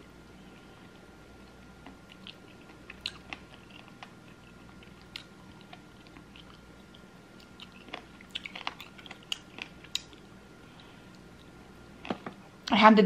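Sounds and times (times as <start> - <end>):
wet mouth clicks and smacks chewing: 1.4 - 10.3.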